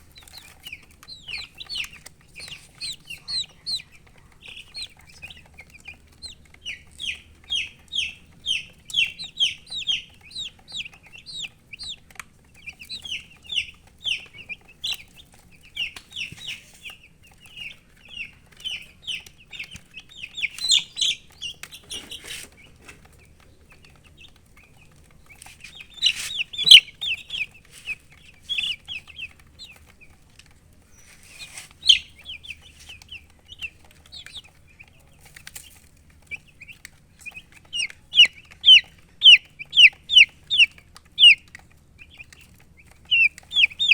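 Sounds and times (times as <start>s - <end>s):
baby chicks peeping: 0.0s - 43.9s.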